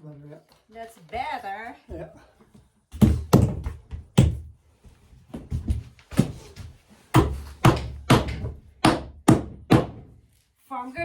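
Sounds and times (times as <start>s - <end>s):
hammer driving nails into wood: 7.1s - 10.2s.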